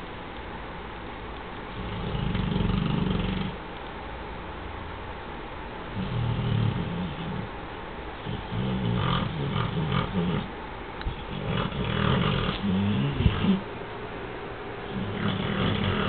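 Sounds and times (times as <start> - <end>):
dog snoring: 1.7 - 3.6, 6.0 - 7.5, 8.2 - 10.5, 11.1 - 13.6, 14.9 - 16.0.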